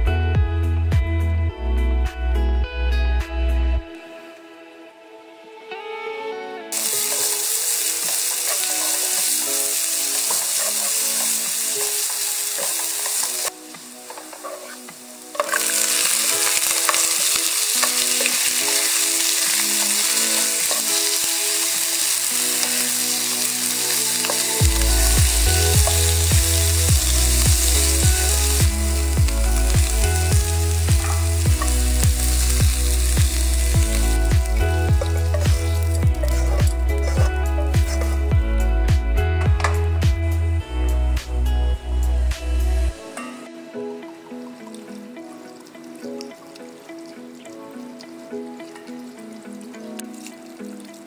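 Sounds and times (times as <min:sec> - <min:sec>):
heavy bass beat: 0:00.0 - 0:01.2, 0:24.6 - 0:40.4
background music: 0:00.0 - 0:51.0
food sizzling in hot oil: 0:06.7 - 0:38.1, 0:43.6 - 0:51.0
spatula stirring in wok: 0:06.8 - 0:13.5, 0:15.4 - 0:29.0.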